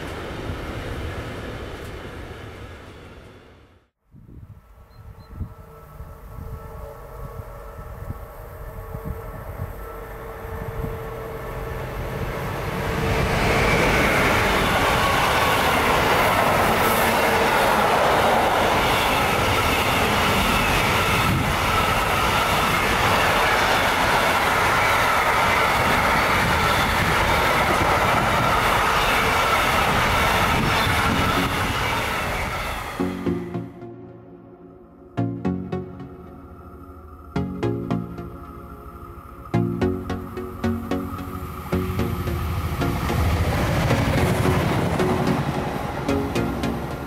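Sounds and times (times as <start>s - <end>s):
train wheels rumbling on rails: 8.9s - 33.0s, 41.5s - 47.0s.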